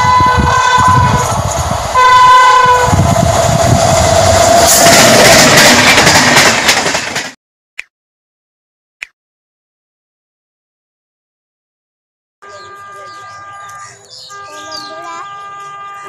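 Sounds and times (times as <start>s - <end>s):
locomotive horn blasts: 0.0s - 1.4s, 2.0s - 3.0s, 12.4s - 16.0s
train wheels rushing and rattling: 0.0s - 7.4s.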